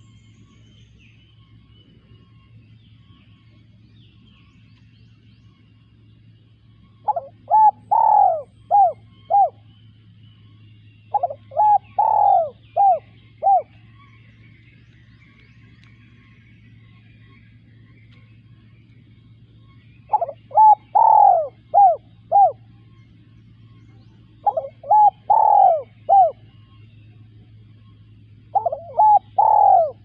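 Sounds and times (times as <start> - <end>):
birds chirping: 0.0 - 30.0
steady low hum: 0.0 - 30.0
dove cooing: 7.0 - 9.7, 11.1 - 14.0, 19.9 - 22.8, 24.2 - 30.0.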